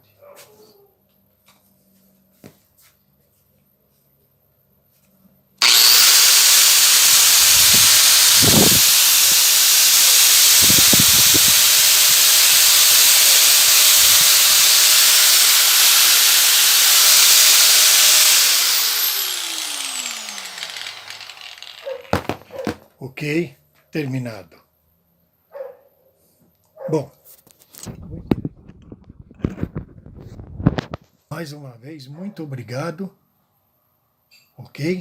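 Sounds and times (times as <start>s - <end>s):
angle grinder whining: 5.6s - 22.8s.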